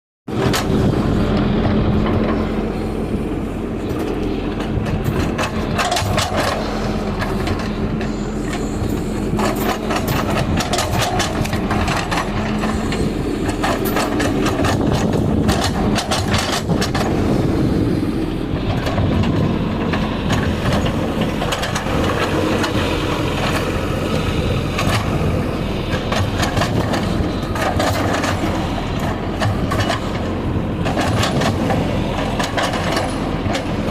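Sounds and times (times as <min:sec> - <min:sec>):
excavator diesel engine running: 0:00.3 - 0:33.9.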